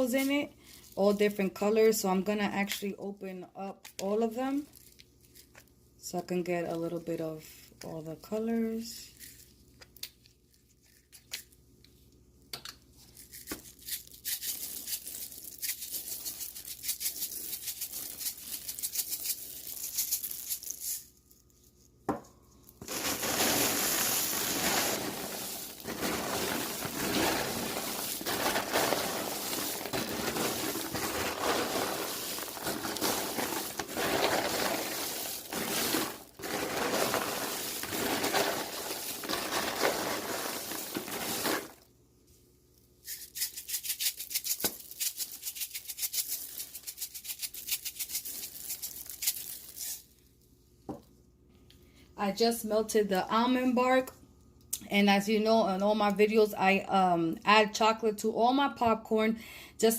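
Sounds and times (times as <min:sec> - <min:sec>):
crackling and rustling packaging: 0:13.0 - 0:41.9, 0:43.1 - 0:50.4.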